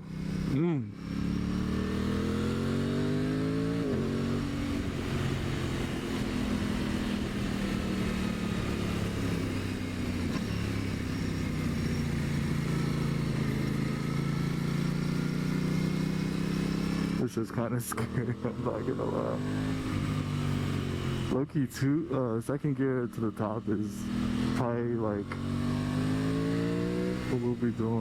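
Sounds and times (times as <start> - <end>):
motorcycle engine pulling uphill: 0.0 - 21.4.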